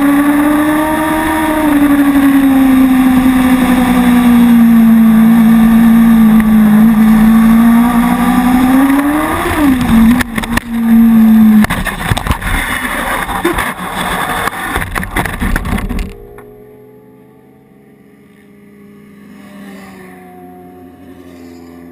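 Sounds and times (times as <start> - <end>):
motorcycle engine revving high: 0.0 - 12.3.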